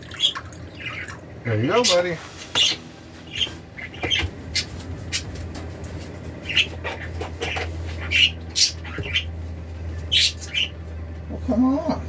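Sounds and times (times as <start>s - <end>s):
budgerigars chirping and squawking: 0.0s - 12.0s
steady low hum: 0.0s - 12.0s.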